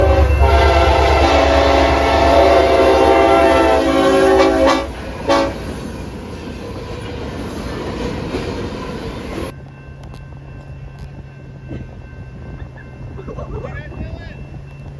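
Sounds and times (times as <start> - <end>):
locomotive air horn: 0.0 - 5.8
train rumbling past: 0.0 - 14.9.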